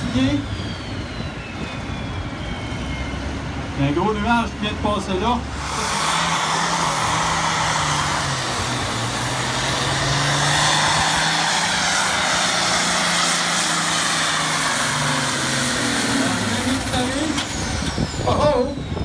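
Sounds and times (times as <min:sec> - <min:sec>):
tractor engine at high revs: 0:05.4 - 0:18.9.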